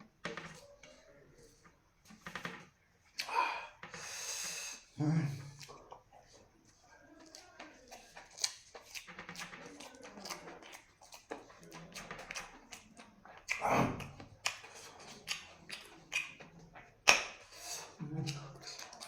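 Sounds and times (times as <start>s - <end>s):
person chewing and crunching food: 3.1s - 19.0s.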